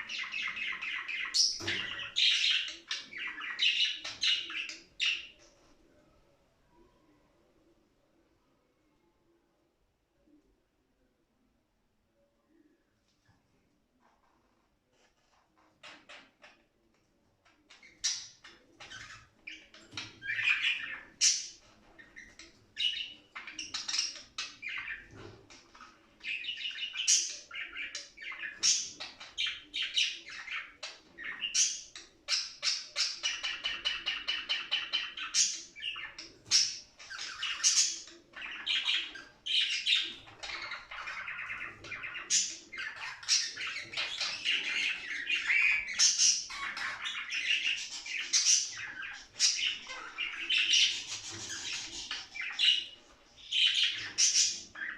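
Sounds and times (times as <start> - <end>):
budgerigars warbling and chirping: 0.0 - 5.5, 17.7 - 54.9.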